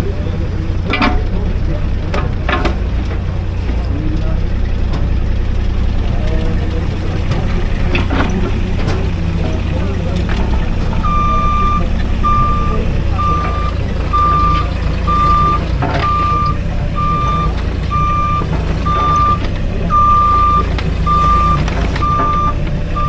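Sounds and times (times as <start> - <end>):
engine running: 0.0 - 23.0
backup alarm beeping: 6.6 - 23.0.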